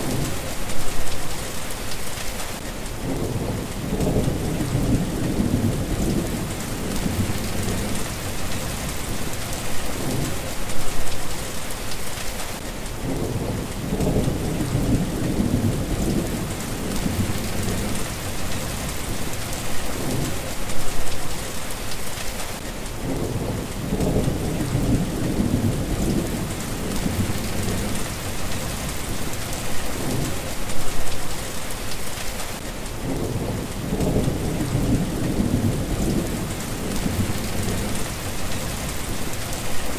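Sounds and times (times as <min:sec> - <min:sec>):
steady rain: 0:00.0 - 0:39.9
thunder rumbling: 0:03.0 - 0:11.4, 0:13.0 - 0:21.2, 0:23.0 - 0:31.2, 0:33.0 - 0:39.9.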